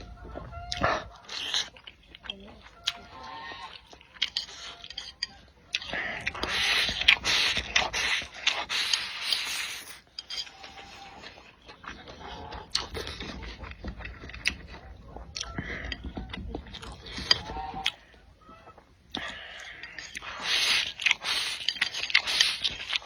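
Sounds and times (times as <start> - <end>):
chewing and lip-smacking: 0.0 - 23.0
breathy slurp: 5.8 - 11.4, 19.2 - 23.0.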